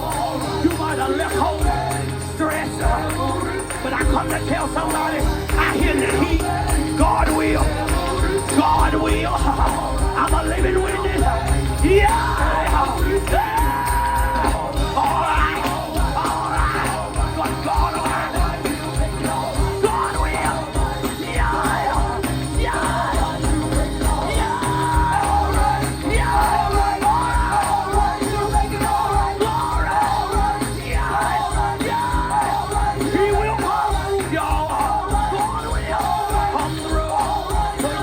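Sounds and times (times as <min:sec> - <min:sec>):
gospel band playing: 0:00.0 - 0:38.0.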